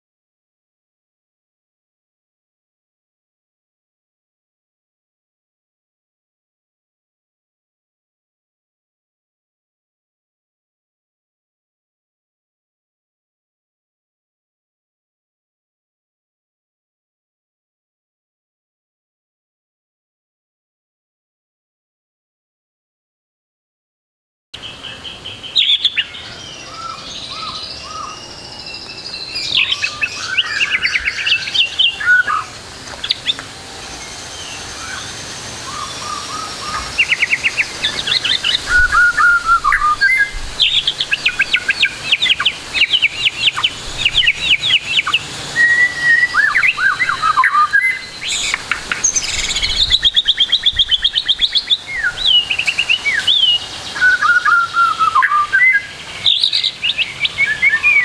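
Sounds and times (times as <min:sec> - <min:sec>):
songbird singing trills and whistles: 0:24.6 - 0:58.0.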